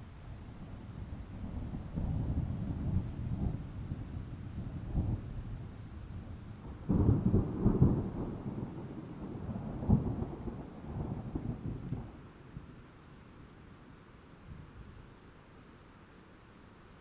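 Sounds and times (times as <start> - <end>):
steady rain: 0.0 - 17.0
thunder crackling and rumbling: 0.9 - 12.2.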